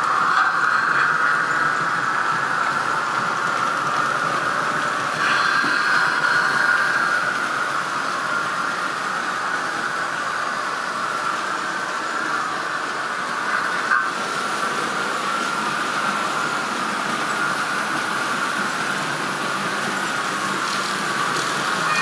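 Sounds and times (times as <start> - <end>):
model locomotive running hum: 0.0 - 22.0.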